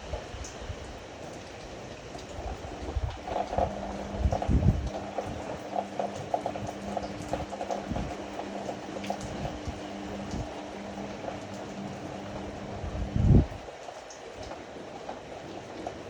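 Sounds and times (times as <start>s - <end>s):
motor hum: 2.4s - 15.9s
washing machine drum turning: 3.0s - 13.6s.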